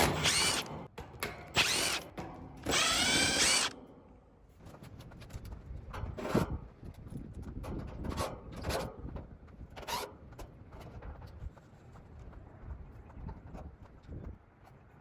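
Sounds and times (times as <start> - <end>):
power drill spinning: 0.0 - 0.9, 1.5 - 3.8.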